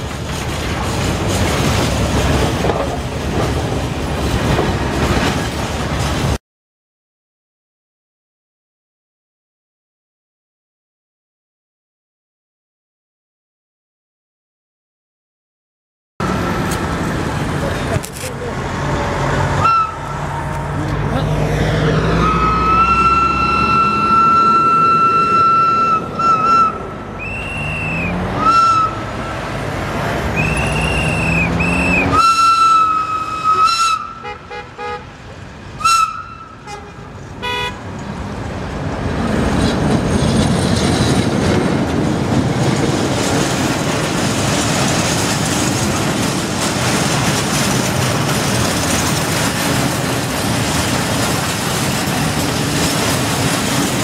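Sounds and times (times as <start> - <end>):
train wagons rumbling over rails: 0.0 - 6.4, 16.2 - 54.0
locomotive horn blasts: 19.6 - 20.2, 22.2 - 29.1, 30.4 - 35.2, 35.8 - 37.9.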